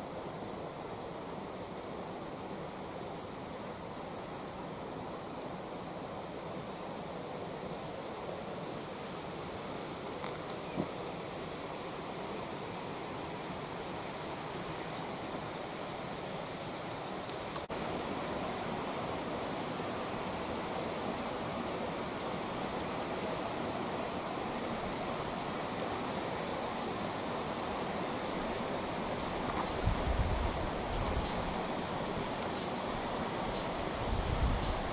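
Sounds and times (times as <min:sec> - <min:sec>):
creek water running: 0:00.0 - 0:34.9.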